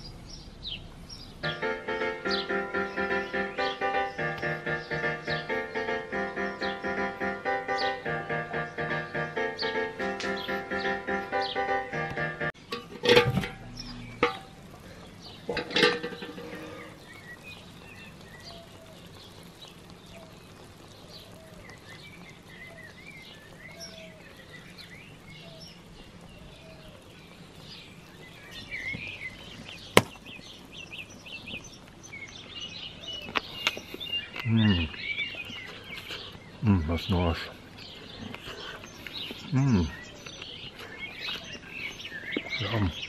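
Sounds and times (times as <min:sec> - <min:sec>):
birds chirping: 0:00.0 - 0:43.0
loud knocks: 0:30.0 - 0:30.2.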